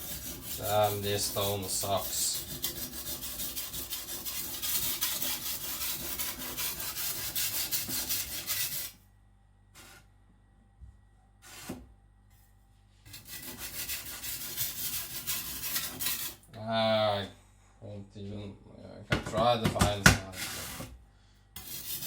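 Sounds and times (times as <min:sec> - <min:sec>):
knife scraping on whetstone: 0:00.0 - 0:09.0, 0:11.4 - 0:11.8, 0:13.0 - 0:16.4, 0:20.3 - 0:21.0, 0:21.6 - 0:22.0.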